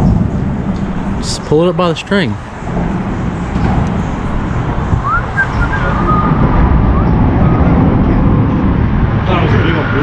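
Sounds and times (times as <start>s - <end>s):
low rumbling noise: 0.0s - 10.0s
faint whistle-like calls: 5.0s - 7.7s.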